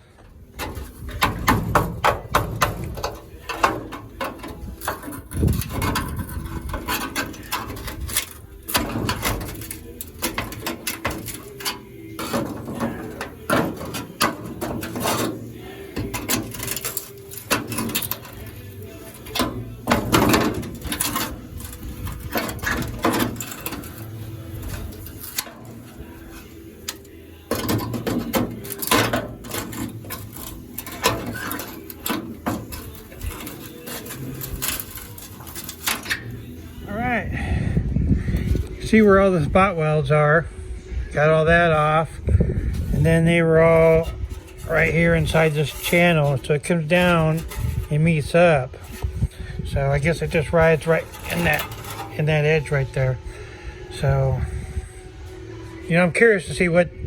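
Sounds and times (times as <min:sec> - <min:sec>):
hammering on sheet metal: 0:00.6 - 0:08.1.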